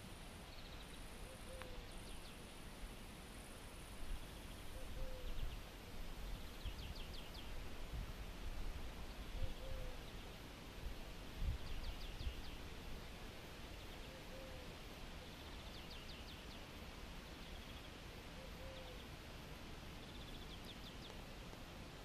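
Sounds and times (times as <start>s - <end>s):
steady outdoor hiss: 0.0s - 22.0s
small bird singing: 0.5s - 2.5s, 6.4s - 7.6s, 11.6s - 12.7s.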